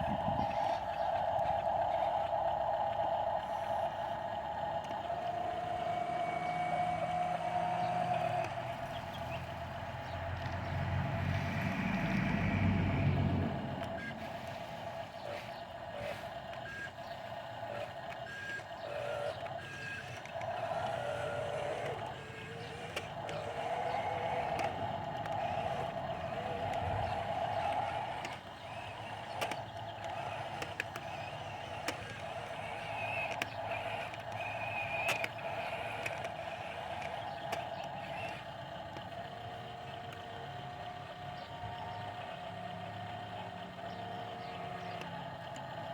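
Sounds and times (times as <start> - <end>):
heavy diesel engine running: 0.0 - 45.9.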